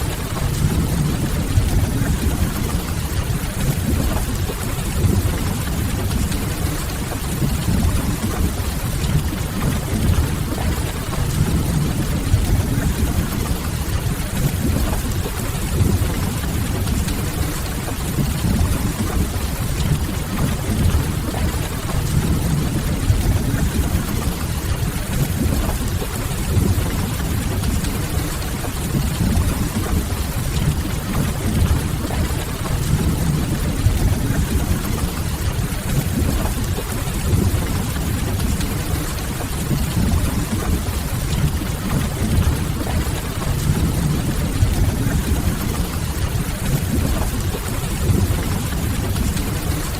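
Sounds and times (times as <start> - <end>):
rain on window glass: 0.0 - 49.9
deep rumble: 28.8 - 49.9.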